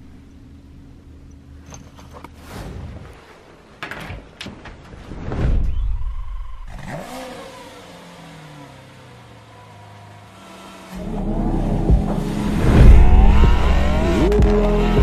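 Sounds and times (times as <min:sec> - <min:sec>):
car engine starting and revving: 0:06.5 - 0:15.0.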